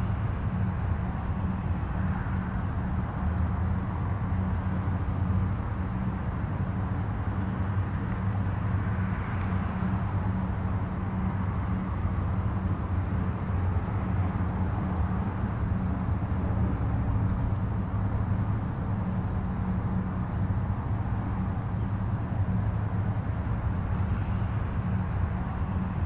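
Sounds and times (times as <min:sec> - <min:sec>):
distant highway traffic rumble: 0:00.0 - 0:26.0.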